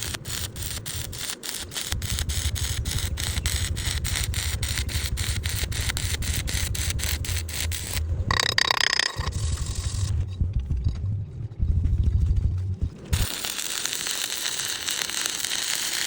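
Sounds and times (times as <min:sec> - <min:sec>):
welding arc crackling and hissing: 0:00.0 - 0:10.2, 0:13.0 - 0:16.0
low hum: 0:01.8 - 0:13.9.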